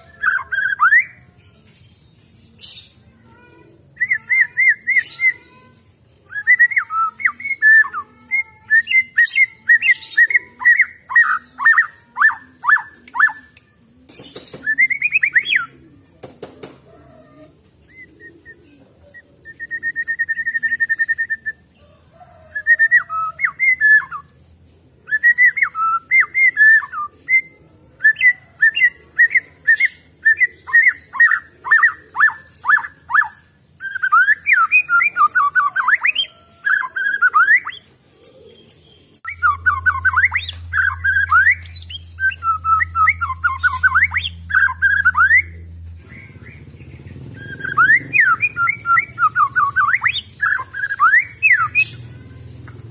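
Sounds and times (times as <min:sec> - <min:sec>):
bird singing whistled phrases: 0:04.0 - 0:13.6, 0:14.5 - 0:15.7, 0:17.9 - 0:21.6, 0:22.5 - 0:24.4, 0:25.1 - 0:37.9, 0:39.2 - 0:46.4, 0:47.3 - 0:52.0.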